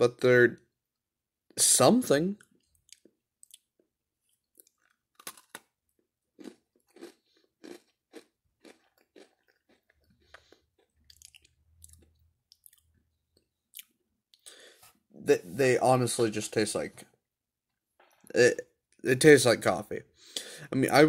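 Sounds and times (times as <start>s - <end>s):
crunchy cookie being chewed: 2.5s - 13.0s.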